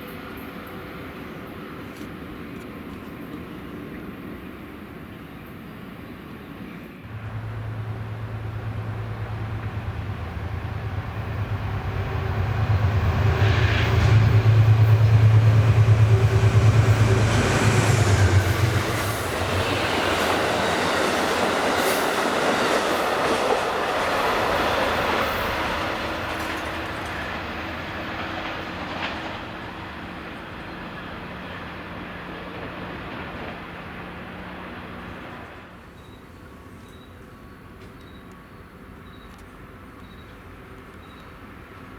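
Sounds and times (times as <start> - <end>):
low hum of approaching train: 0.0 - 41.9
train cars clattering past: 7.0 - 38.3.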